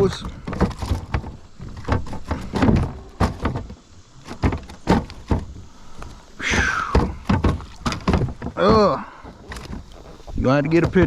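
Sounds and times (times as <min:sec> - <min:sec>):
knocks on plastic kayak hull: 0:06.9 - 0:09.0.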